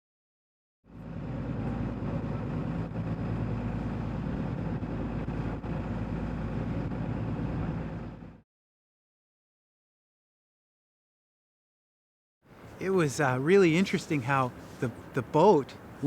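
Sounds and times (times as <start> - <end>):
boat engine running: 0.9 - 8.4.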